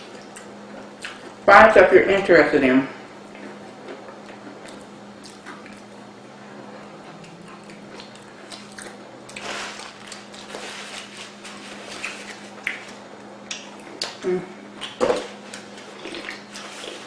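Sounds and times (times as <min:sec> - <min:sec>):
low hum: 0:00.0 - 0:17.0
person chewing food: 0:03.3 - 0:06.0, 0:06.8 - 0:14.2, 0:14.8 - 0:17.0.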